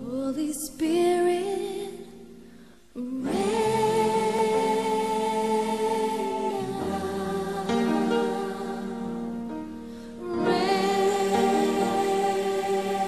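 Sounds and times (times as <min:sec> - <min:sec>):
worship singing with held notes: 0:00.0 - 0:13.0.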